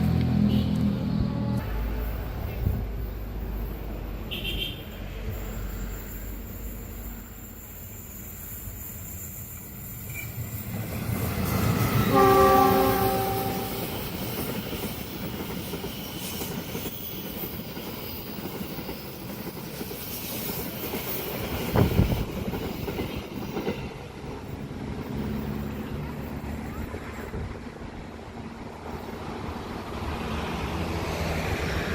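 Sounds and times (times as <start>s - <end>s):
train wheels rumbling and clattering: 4.9s - 31.9s
train horn: 12.0s - 14.1s.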